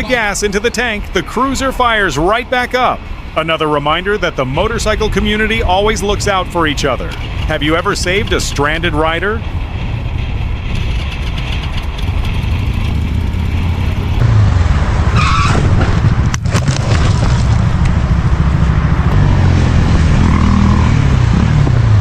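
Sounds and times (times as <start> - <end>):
road noise: 0.0 - 22.0
vehicle engine running: 4.4 - 22.0.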